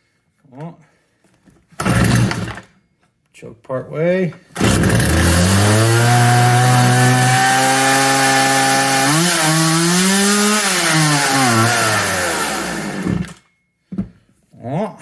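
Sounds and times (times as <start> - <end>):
chainsaw engine running: 1.8 - 2.6, 4.6 - 13.4.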